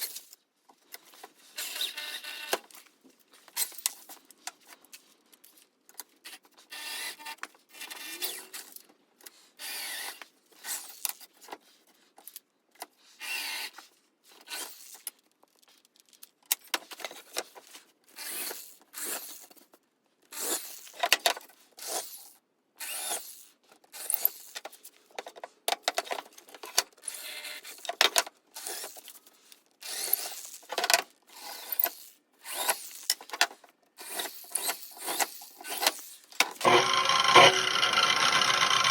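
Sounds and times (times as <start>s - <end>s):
hand tool rasping on workpiece: 36.6s - 38.9s.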